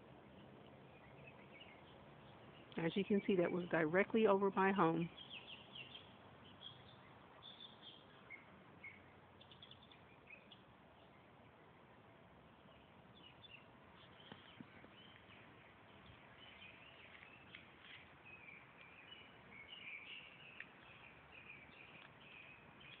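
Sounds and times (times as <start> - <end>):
low background hiss: 0.0 - 23.0
faint bird chirps: 4.8 - 23.0.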